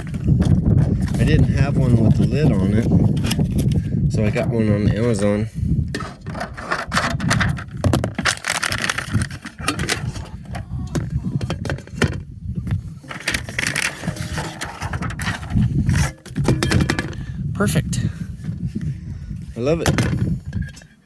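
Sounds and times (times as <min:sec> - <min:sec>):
packaging rustling: 0:08.2 - 0:10.3.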